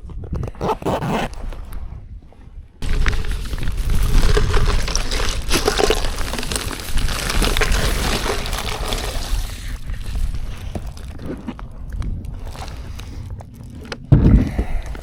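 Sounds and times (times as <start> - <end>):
water sloshing and splashing: 2.8 - 14.2.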